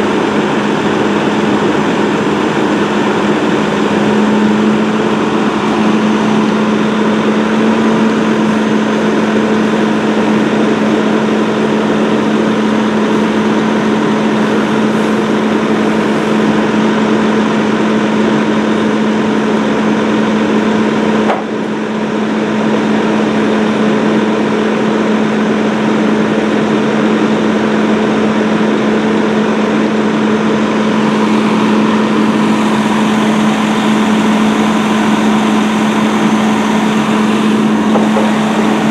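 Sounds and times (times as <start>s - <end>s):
fire engine running: 0.0s - 38.9s.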